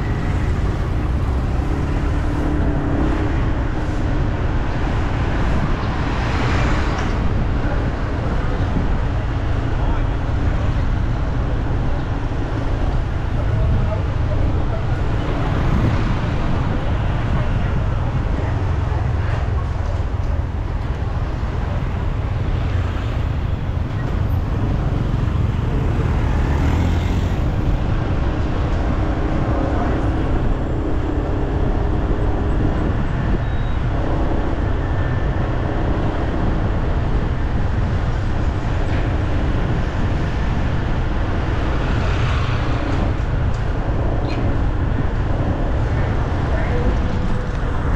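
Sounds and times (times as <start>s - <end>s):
city street traffic rumble: 0.0s - 47.9s.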